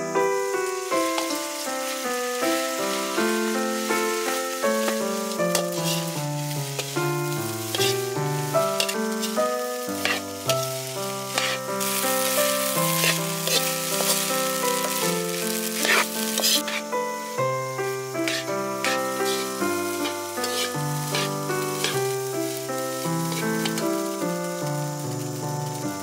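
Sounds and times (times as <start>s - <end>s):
rice sizzling in a wok: 0.0s - 26.0s
ladle scraping and clinking on pan: 4.8s - 6.2s, 10.0s - 10.2s, 11.4s - 11.6s, 12.9s - 14.2s, 15.8s - 16.8s, 18.3s - 22.0s.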